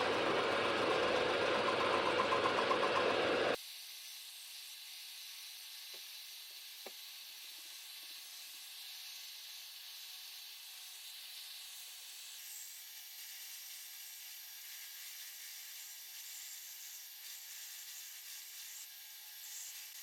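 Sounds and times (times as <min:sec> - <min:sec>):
milling machine cutting steel: 0:00.0 - 0:03.6.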